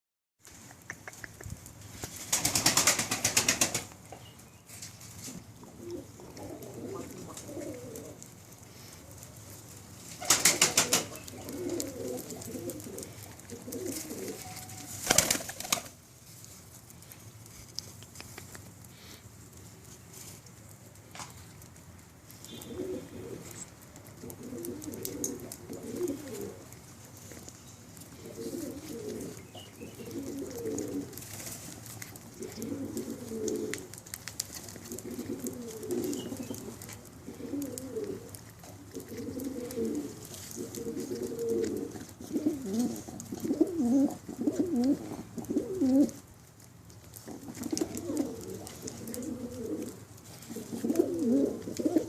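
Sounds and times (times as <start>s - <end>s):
pigeons cooing: 5.3s - 8.5s, 9.1s - 15.9s, 22.4s - 27.0s, 28.0s - 34.0s, 34.6s - 46.3s, 47.1s - 52.0s.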